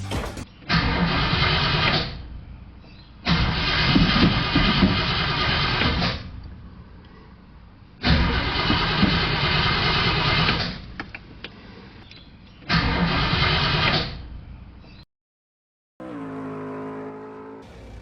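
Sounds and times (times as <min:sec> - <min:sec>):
car engine cranking on starter: 0:08.1 - 0:10.8.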